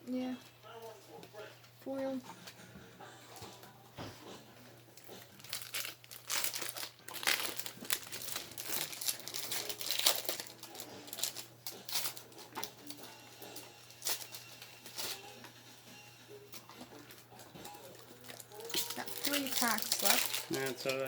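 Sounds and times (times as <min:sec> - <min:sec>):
wrappers torn and crinkled: 0:05.0 - 0:15.3, 0:17.0 - 0:21.0.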